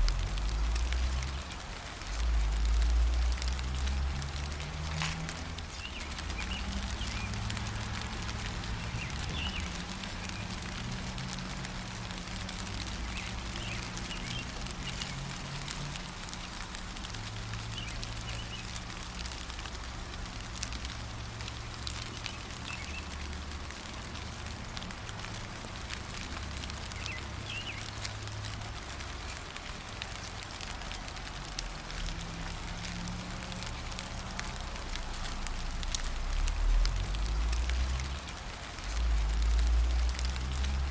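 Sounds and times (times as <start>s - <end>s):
steady rain pattering: 0.0s - 40.9s
bird chirping: 8.8s - 10.6s, 13.0s - 15.3s, 17.7s - 18.7s, 22.1s - 23.1s, 26.9s - 28.0s.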